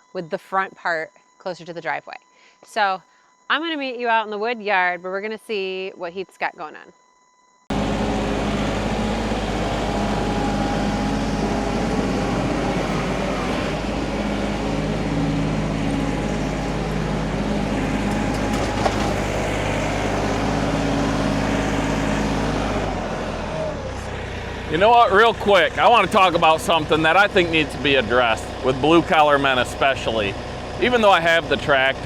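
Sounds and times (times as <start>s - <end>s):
tractor diesel engine running: 7.7s - 32.0s.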